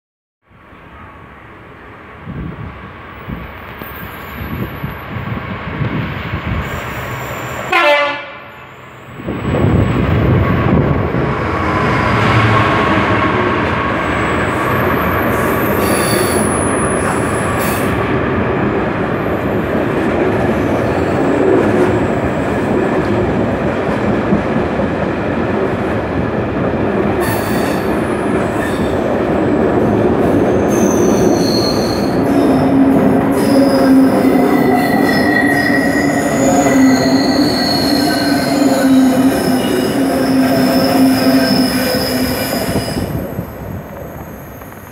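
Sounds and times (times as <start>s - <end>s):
freight train rumbling past: 0.5s - 44.9s
diesel locomotive horn blast: 7.6s - 8.6s
wheel squeal: 15.4s - 17.3s, 30.5s - 32.6s, 33.4s - 43.2s.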